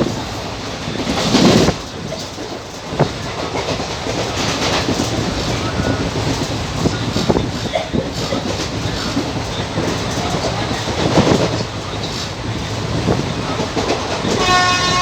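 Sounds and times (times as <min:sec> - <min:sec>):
train wheels clattering over rails: 0:00.0 - 0:15.0
train horn: 0:14.2 - 0:15.0.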